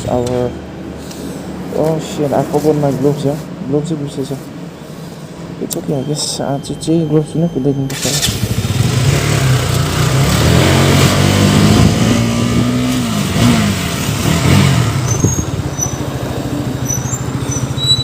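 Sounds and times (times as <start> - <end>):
motorcycle engine running: 8.2 - 18.0.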